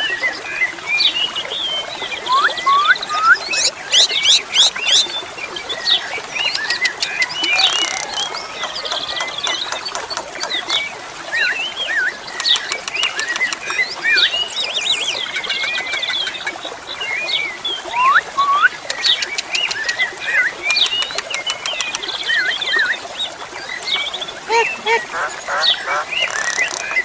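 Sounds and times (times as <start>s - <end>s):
starlings singing: 5.9s - 14.9s.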